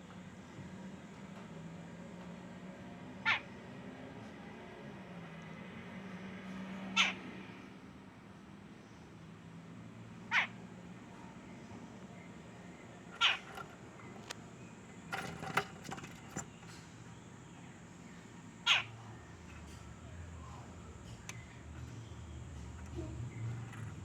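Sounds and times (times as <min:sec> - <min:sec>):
bird giving falling calls: 0:13.0 - 0:14.2, 0:18.6 - 0:19.0.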